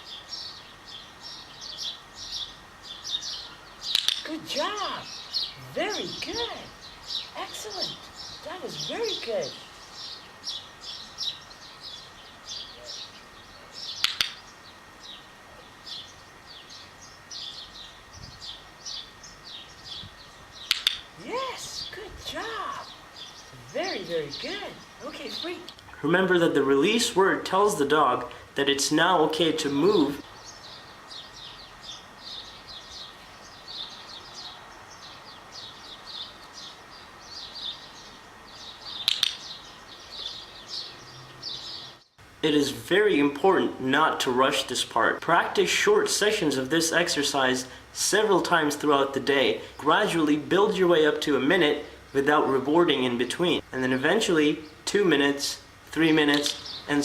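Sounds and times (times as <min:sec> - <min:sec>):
faint outdoor hiss: 0:00.0 - 0:57.0
small birds chirping: 0:00.0 - 0:57.0
sharp clicks: 0:03.8 - 0:04.3, 0:14.0 - 0:14.5, 0:20.6 - 0:21.1, 0:39.0 - 0:39.6, 0:56.3 - 0:56.8.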